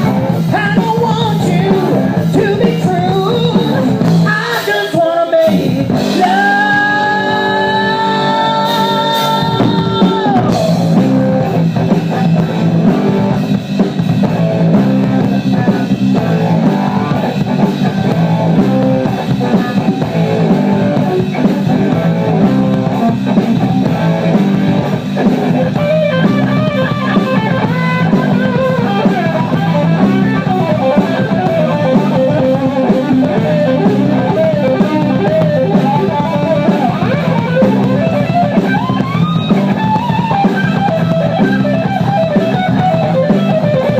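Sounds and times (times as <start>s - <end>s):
person singing: 0.0s - 10.8s
electric guitar lead line: 0.0s - 43.9s
live rock band playing: 0.0s - 43.9s.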